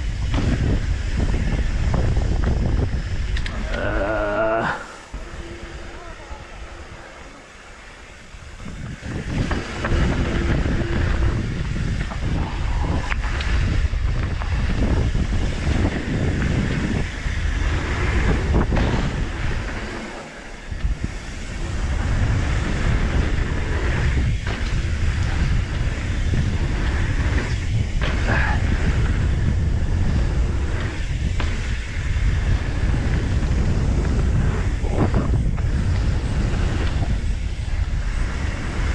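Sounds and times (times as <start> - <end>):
wind buffeting microphone: 0.0 - 38.9
bike knocking over ground: 18.3 - 19.9.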